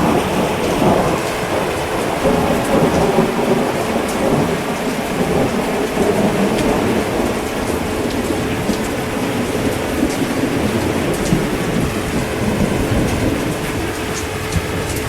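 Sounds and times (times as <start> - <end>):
heavy rain: 0.0 - 15.0
thunder rumbling: 0.0 - 15.0.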